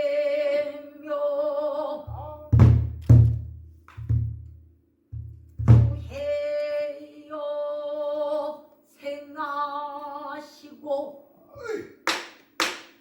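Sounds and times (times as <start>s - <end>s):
deep drum thumps: 2.1s - 4.5s, 5.2s - 6.1s.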